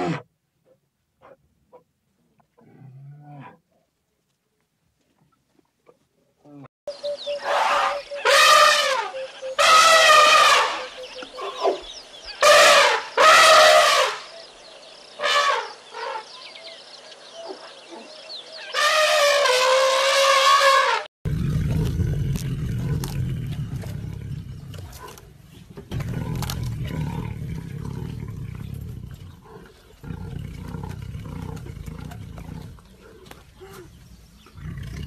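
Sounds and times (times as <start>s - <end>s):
elephant trumpeting: 7.4s - 11.6s, 12.4s - 14.2s, 18.7s - 24.0s
tiger growling: 21.3s - 35.0s.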